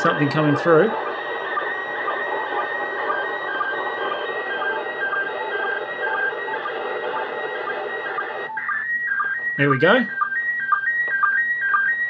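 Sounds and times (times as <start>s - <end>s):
radio hiss: 0.0s - 8.5s
warbling data tones: 0.0s - 12.0s.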